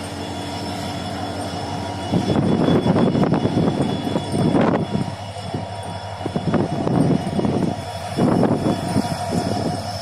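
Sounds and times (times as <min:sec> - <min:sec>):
train rumbling past: 0:00.0 - 0:10.0
wheels clattering on rails: 0:00.0 - 0:10.0.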